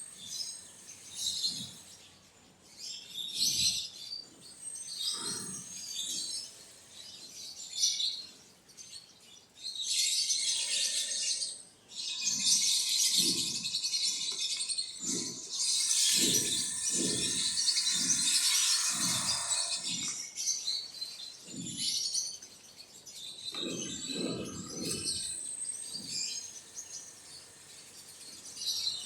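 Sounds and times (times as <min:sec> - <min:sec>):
quail chirping and chattering: 0:12.0 - 0:20.2.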